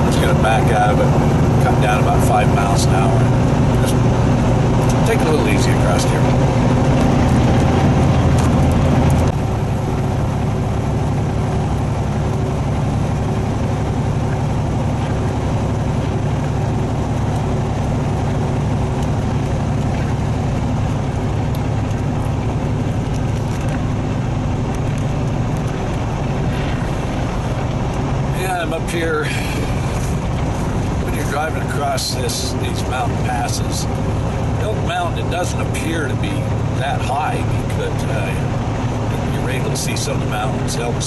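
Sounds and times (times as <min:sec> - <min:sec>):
truck diesel engine drone in cab: 0:00.0 - 0:41.0.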